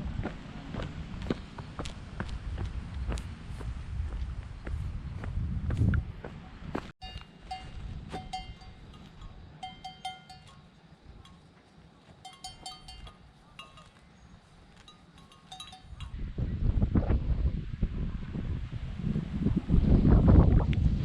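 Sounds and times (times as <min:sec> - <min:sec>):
small metal bells ringing: 0:07.0 - 0:11.5, 0:12.2 - 0:14.1, 0:14.8 - 0:16.2.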